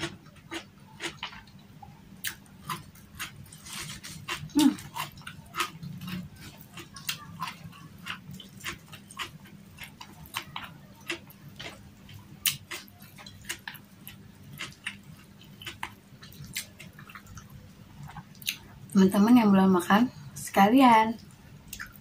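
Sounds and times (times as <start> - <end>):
person chewing and lip smacking: 0.0 - 1.6, 2.2 - 18.7, 21.7 - 22.0.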